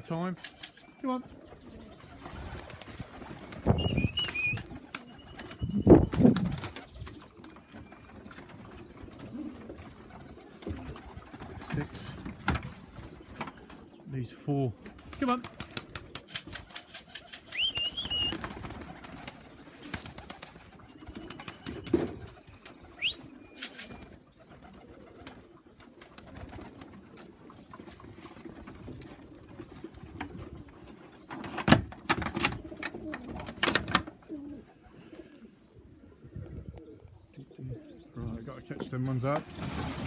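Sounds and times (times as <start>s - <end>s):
pigeons cooing: 0.0s - 40.0s
wing flutters and clicks: 0.3s - 1.0s, 1.6s - 11.9s, 14.8s - 30.4s
short bird chirps: 17.4s - 18.4s, 22.9s - 24.1s.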